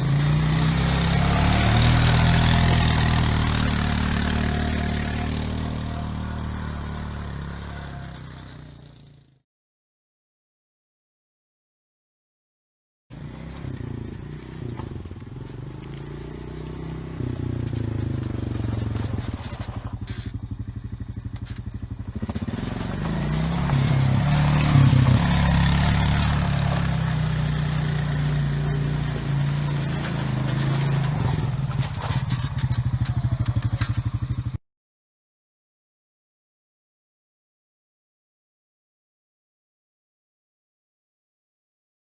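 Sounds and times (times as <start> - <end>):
quad bike engine running: 0.0 - 9.4, 13.1 - 34.6.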